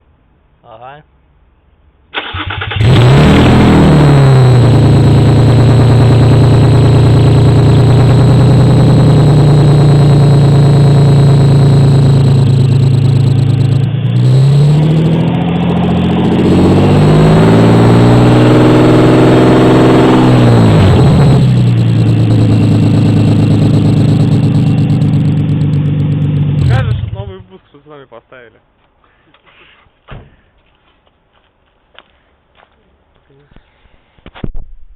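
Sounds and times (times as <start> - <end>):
unmuffled car engine revving: 2.7 - 27.4.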